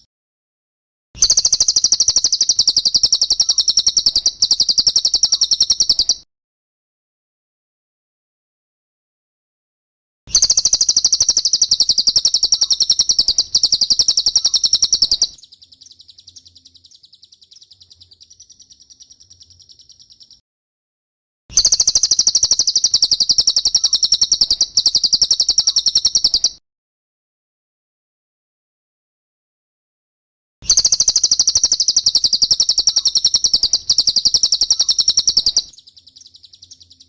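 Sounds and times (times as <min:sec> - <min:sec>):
bird trilling: 0:01.2 - 0:06.2, 0:10.3 - 0:20.4, 0:21.6 - 0:26.6, 0:30.7 - 0:37.0.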